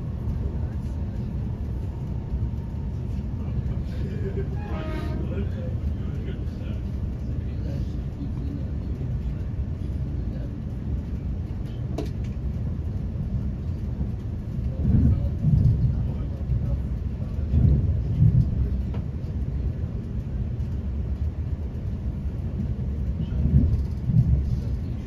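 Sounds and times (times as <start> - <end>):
train interior running rumble: 0.0 - 25.0.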